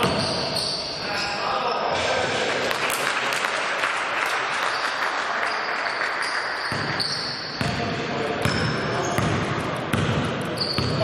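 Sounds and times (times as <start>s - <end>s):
spectators applauding: 2.4s - 7.0s.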